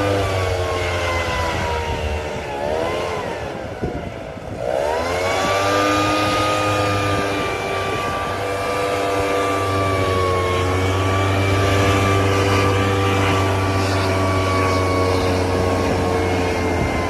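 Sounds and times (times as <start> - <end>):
high-pitched motor running: 0.0 - 17.0.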